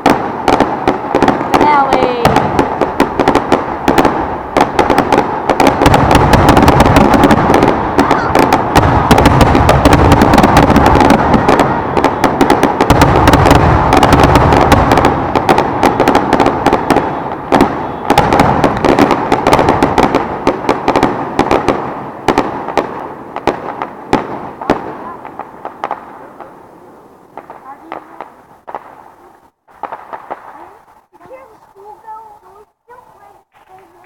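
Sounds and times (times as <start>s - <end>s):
fireworks shell bursts and pops: 33.4s - 34.0s.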